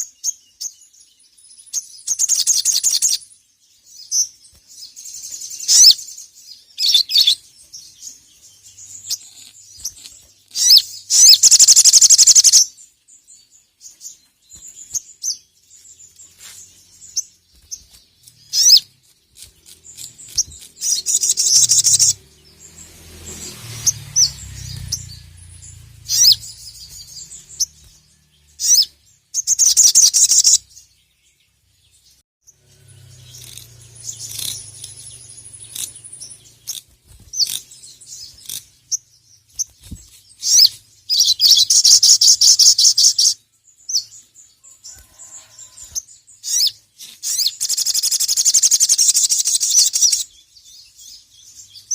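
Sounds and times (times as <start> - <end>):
bird sharp chirps: 0.0 - 51.9
bird buzzing trills: 32.5 - 39.0.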